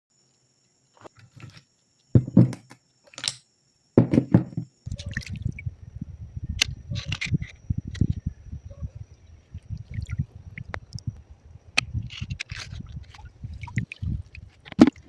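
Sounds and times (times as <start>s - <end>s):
faint high whine: 0.1s - 15.0s
water splashing and dripping: 4.9s - 5.6s, 9.4s - 15.0s
low rumbling: 4.9s - 15.0s.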